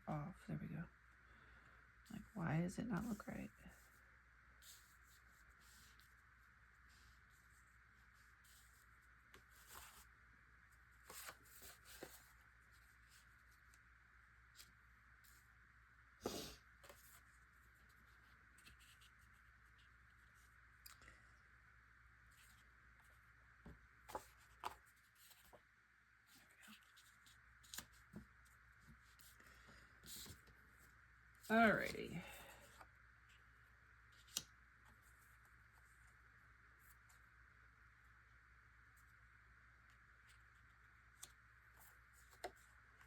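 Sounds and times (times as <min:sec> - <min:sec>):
paper rustling: 0:06.8 - 0:10.1, 0:10.9 - 0:13.8, 0:22.3 - 0:25.7, 0:26.3 - 0:30.8.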